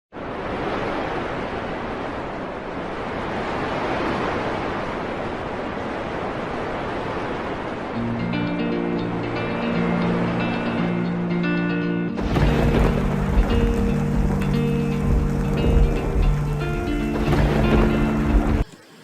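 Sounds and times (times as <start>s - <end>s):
steady rushing noise: 0.2s - 18.7s
music: 8.0s - 18.6s.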